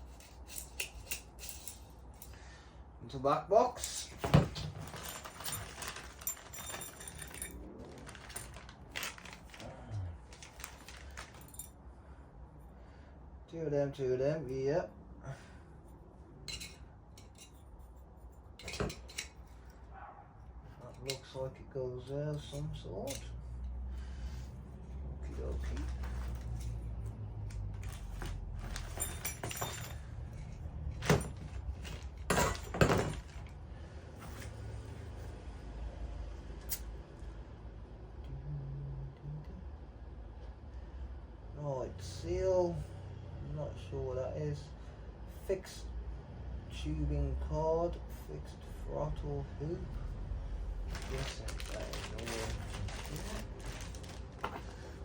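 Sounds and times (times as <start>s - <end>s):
small parts clicking and rattling: 0.0s - 2.4s, 3.8s - 9.7s, 10.3s - 11.8s, 25.4s - 33.6s
packaging rustling: 4.2s - 11.7s, 27.6s - 30.0s, 50.8s - 55.0s.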